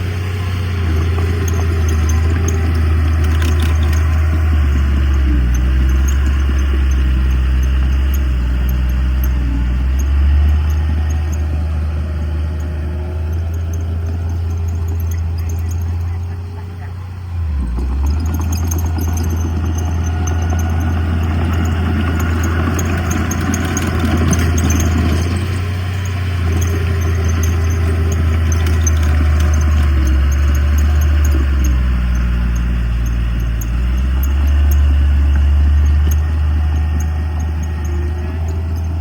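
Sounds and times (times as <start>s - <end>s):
heavy diesel engine droning: 0.0s - 39.0s
light metallic clinking: 0.8s - 17.0s, 17.7s - 39.0s.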